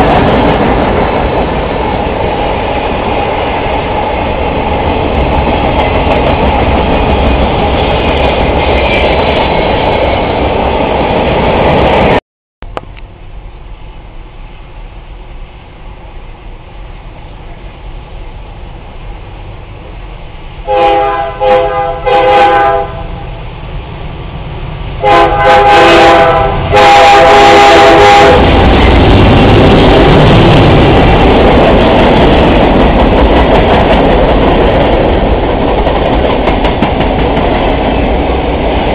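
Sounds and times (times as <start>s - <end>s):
freight train rumbling by: 0.0s - 38.9s
locomotive horn blasts: 20.7s - 23.2s, 25.0s - 28.6s.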